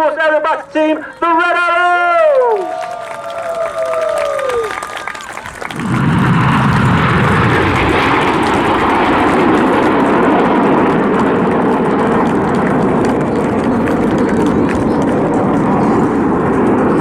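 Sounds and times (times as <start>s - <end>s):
jet engines flying past: 0.0s - 17.0s.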